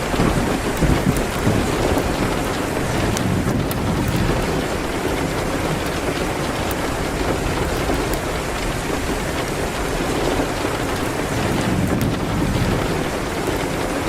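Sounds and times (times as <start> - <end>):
heavy rain falling: 0.0 - 14.0
deep low rumble: 0.8 - 9.4, 11.0 - 13.6.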